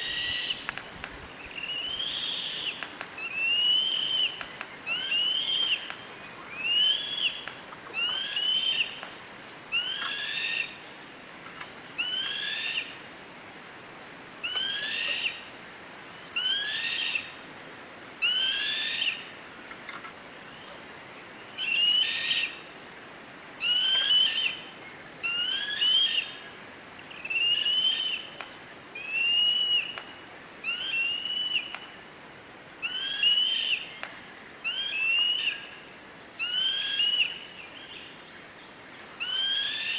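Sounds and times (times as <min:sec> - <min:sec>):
bird whistling call: 0:01.5 - 0:05.8, 0:27.1 - 0:28.3, 0:29.0 - 0:30.0, 0:32.8 - 0:33.8.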